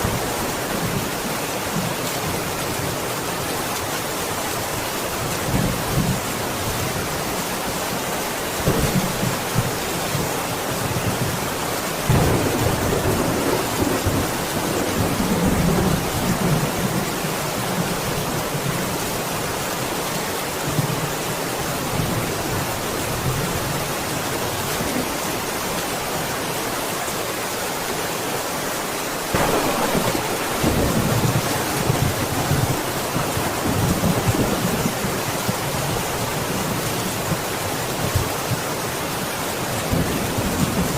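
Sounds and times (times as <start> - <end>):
heavy rain hissing: 0.0 - 40.8
thunder rumbling: 12.0 - 16.8, 29.3 - 36.2.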